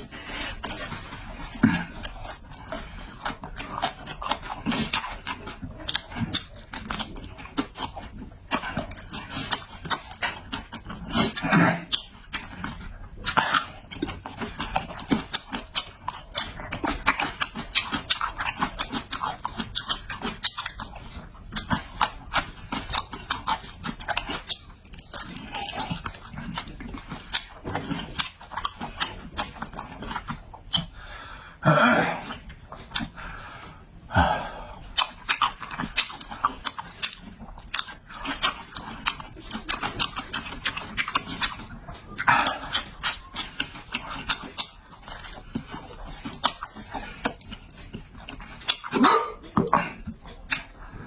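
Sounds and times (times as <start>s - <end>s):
person chewing and smacking: 0.0s - 51.0s.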